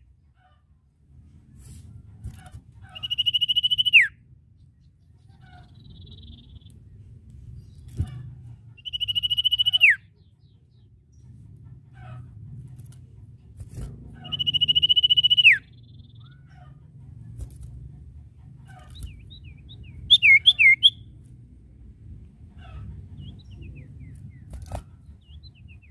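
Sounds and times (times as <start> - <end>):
bird whistled trilling notes: 3.0 - 4.2, 8.8 - 10.0, 14.2 - 16.0, 20.1 - 21.0.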